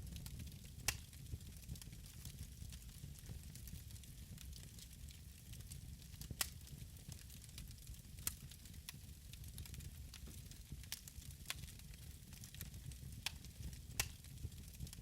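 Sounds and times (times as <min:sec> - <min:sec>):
wood fire crackling: 0:00.0 - 0:15.0
sharp pops of fire: 0:00.2 - 0:01.5, 0:13.2 - 0:14.3.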